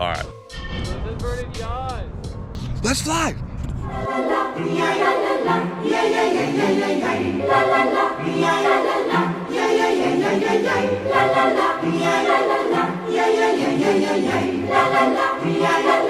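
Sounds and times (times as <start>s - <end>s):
choir singing in harmony: 3.8s - 16.0s.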